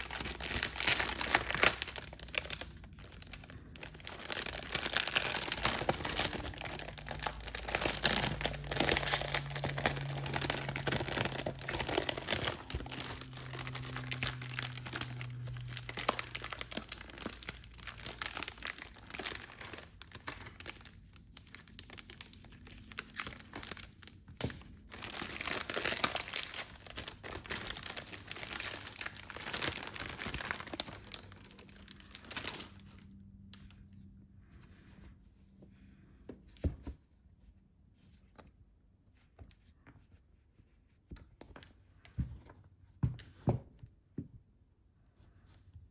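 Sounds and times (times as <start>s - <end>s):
plastic wrapping crinkling: 0.0s - 33.7s.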